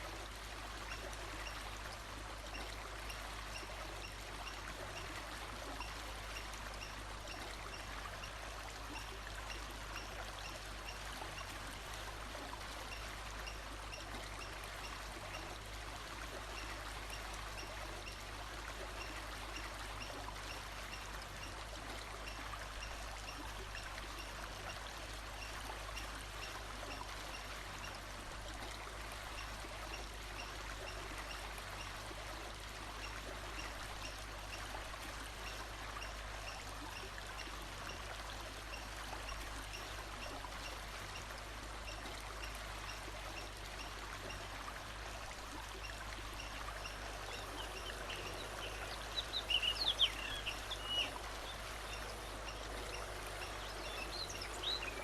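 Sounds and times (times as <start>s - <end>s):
flowing water: 0.0s - 55.0s.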